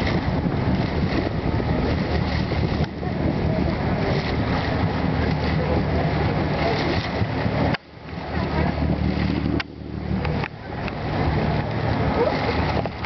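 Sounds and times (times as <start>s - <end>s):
boat engine running: 0.0s - 13.0s
water noise: 0.0s - 13.0s
wind: 0.0s - 13.0s.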